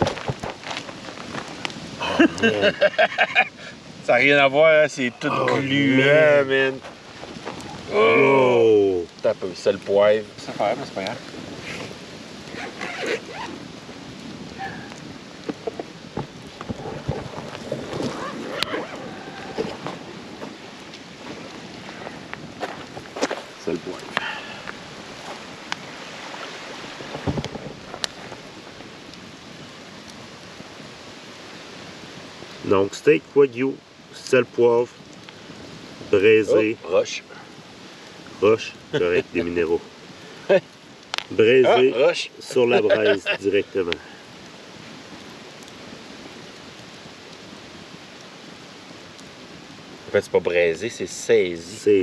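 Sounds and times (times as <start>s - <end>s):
campfire crackling: 0.0s - 52.0s
steaks sizzling on embers: 0.0s - 52.0s
soft low thump: 27.0s - 27.8s.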